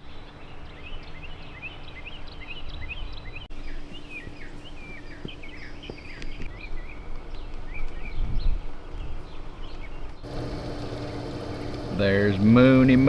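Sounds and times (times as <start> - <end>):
small birds chirping: 0.0 - 13.0
faint steady hum: 10.2 - 13.0.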